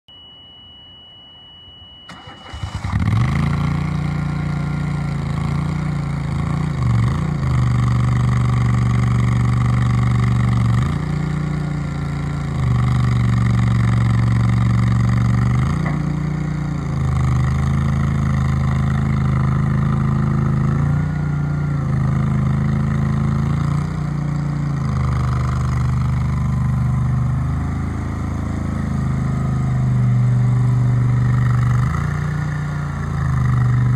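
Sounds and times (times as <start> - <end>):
steady high tone: 0.1 - 2.9
loader engine revving: 2.1 - 33.9.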